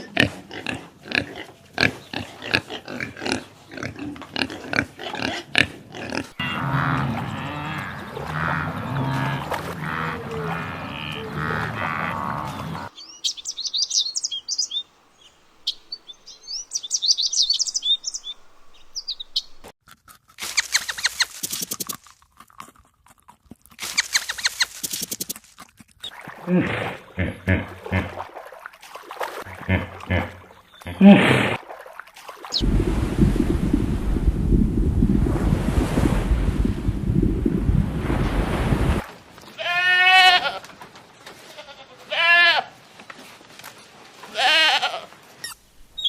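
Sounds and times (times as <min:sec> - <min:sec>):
animal grunting and squealing: 0:00.0 - 0:12.9, 0:26.0 - 0:28.3, 0:29.4 - 0:31.6
high chirping calls: 0:12.8 - 0:19.7
fast rattling calls: 0:20.4 - 0:21.9, 0:23.8 - 0:25.4.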